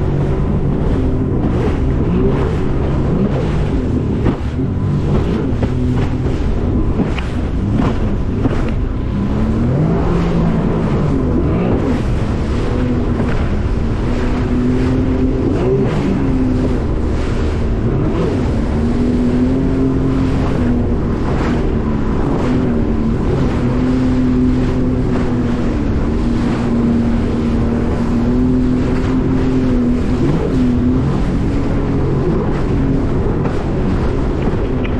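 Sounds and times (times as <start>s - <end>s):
motorboat engine running: 0.0s - 34.9s
water rushing past hull: 0.0s - 34.9s
wind buffeting microphone: 0.0s - 34.9s.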